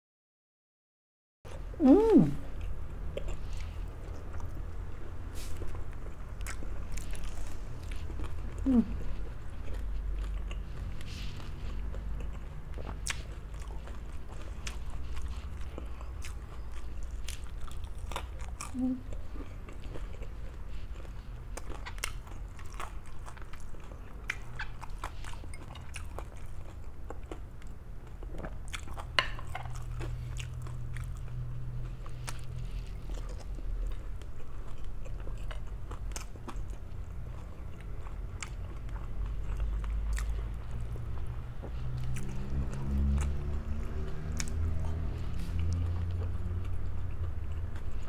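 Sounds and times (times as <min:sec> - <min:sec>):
person chewing food: 0:01.5 - 0:48.0.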